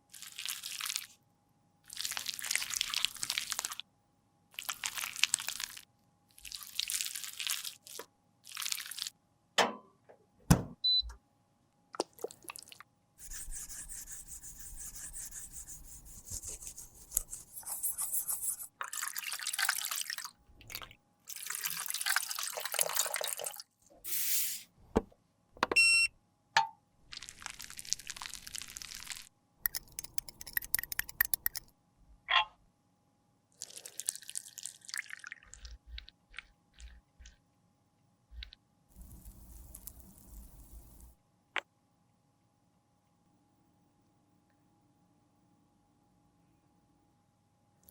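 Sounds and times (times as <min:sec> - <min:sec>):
scraping and rubbing strokes: 0:13.2 - 0:18.8
sharp clicks and taps: 0:29.7 - 0:31.7.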